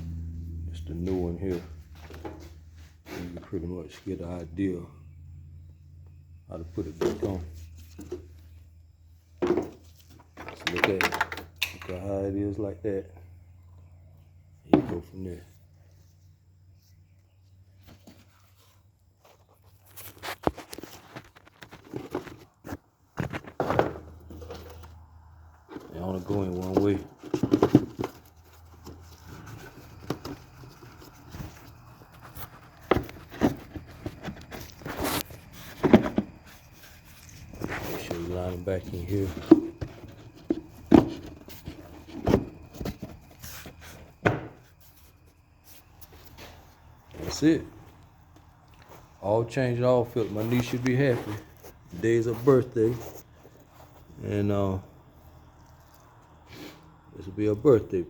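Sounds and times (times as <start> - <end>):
air filter rustling: 0.7 - 4.6, 17.7 - 54.3
plastic rubbing: 25.6 - 47.4.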